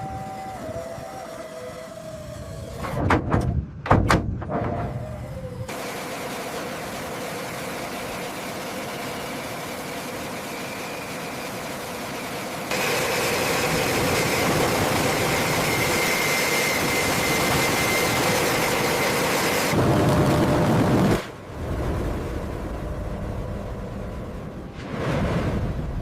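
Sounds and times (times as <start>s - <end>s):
machine hiss and whine: 5.1s - 20.5s.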